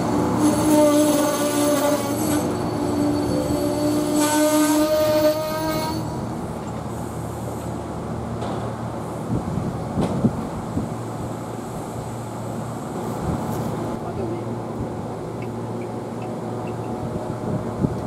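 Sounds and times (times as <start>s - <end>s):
train rolling past: 0.0s - 18.0s
train wheel squeal: 0.4s - 6.2s.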